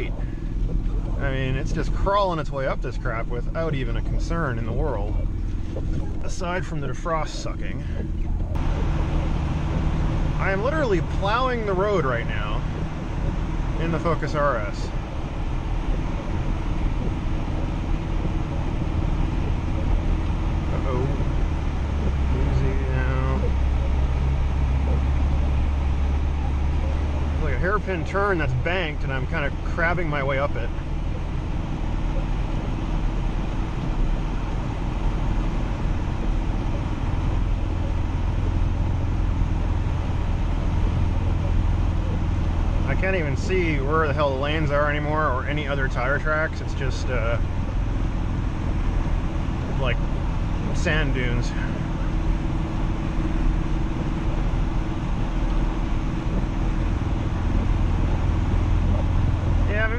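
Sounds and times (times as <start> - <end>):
car engine running under load: 0.0 - 59.9
tyres rushing through snow: 8.6 - 30.7.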